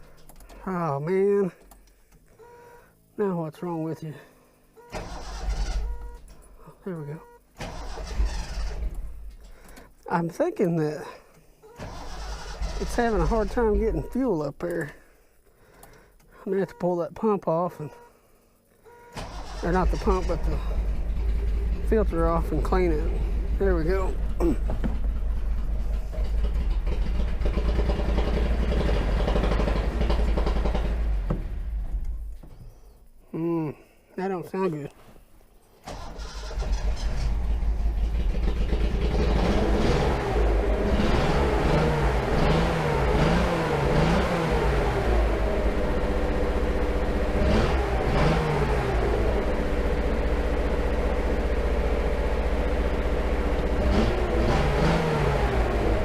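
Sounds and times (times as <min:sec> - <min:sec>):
car engine fast idle: 0:19.2 - 0:31.9
car engine running unevenly: 0:19.2 - 0:32.7, 0:36.2 - 0:56.0.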